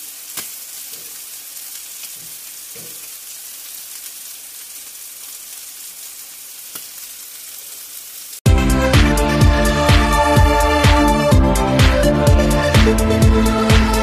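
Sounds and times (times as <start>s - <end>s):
food sizzling in a pan: 0.0s - 8.4s.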